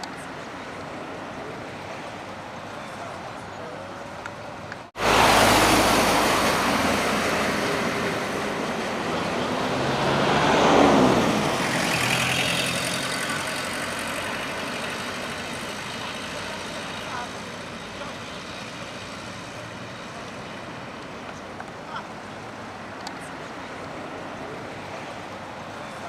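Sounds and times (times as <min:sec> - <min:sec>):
highway traffic noise: 0:00.0 - 0:26.0
vehicle passing close by: 0:05.0 - 0:19.9.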